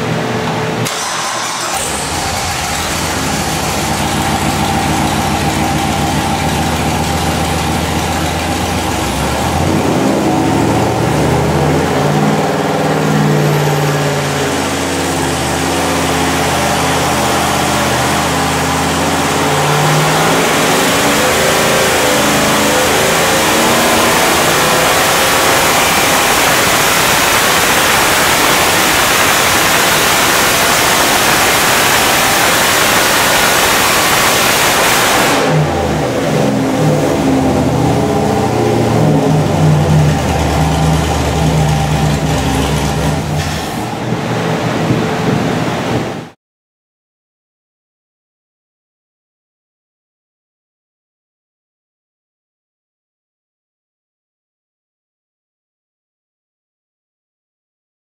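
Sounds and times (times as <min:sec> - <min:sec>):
engine running on dyno: 0:00.0 - 0:46.4.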